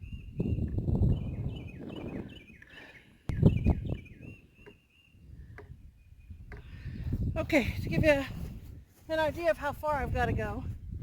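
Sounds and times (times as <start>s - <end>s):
bird chirping: 0.0s - 6.8s.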